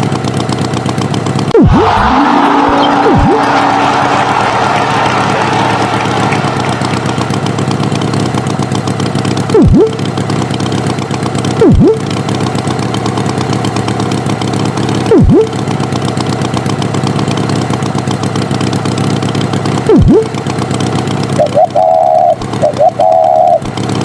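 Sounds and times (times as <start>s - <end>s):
cartoon tractor engine running: 0.0s - 24.0s
swooping tone: 1.5s - 7.8s, 9.6s - 10.0s, 11.6s - 12.1s, 15.1s - 15.6s, 19.9s - 20.3s, 21.4s - 23.7s.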